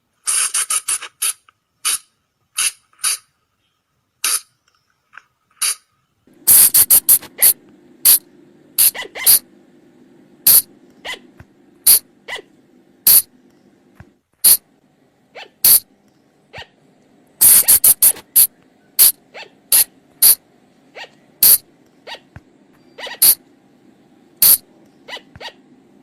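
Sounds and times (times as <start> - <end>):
high-pitched animal cries: 8.8 - 9.4, 10.5 - 11.3, 11.9 - 12.5, 15.4 - 15.8, 16.5 - 16.8, 19.0 - 20.4, 21.0 - 22.3, 22.9 - 23.4, 24.4 - 25.6.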